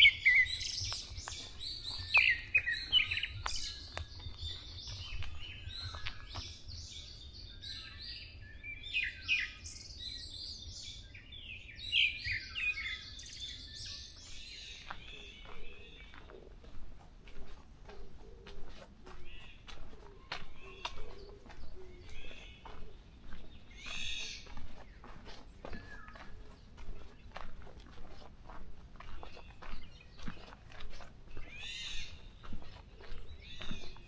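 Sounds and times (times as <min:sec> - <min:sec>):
songbirds chirping and trilling: 0:00.0 - 0:34.0.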